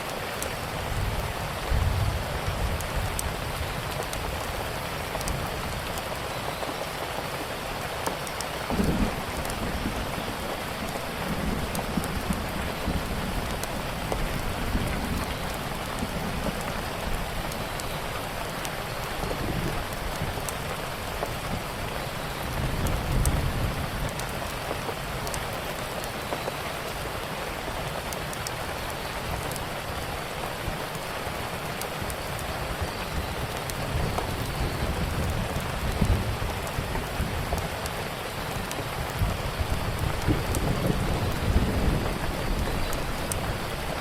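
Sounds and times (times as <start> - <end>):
steady rain: 0.0 - 44.0.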